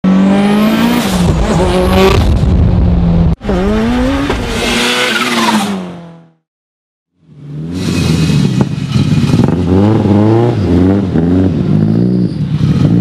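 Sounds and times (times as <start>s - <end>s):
turbocharged engine revving: 7.4s - 13.0s.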